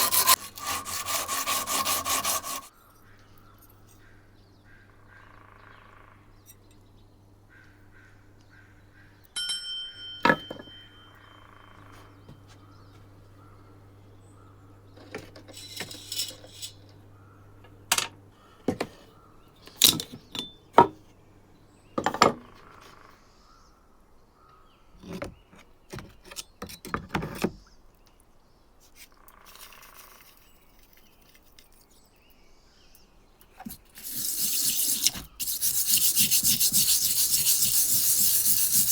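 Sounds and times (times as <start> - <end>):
ringing metal clink: 9.4 - 11.2.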